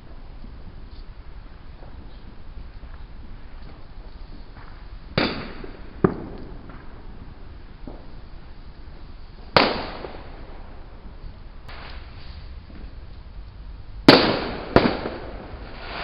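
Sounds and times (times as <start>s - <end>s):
faint firework pops: 3.6s - 7.0s, 11.7s - 13.0s
firework bangs: 3.7s - 13.0s, 14.0s - 16.0s.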